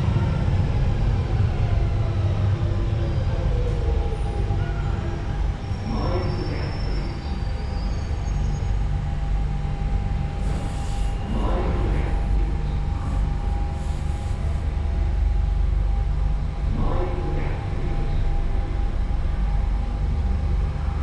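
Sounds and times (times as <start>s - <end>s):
train low rumble: 0.0s - 21.0s
thin steady hum: 5.5s - 21.0s.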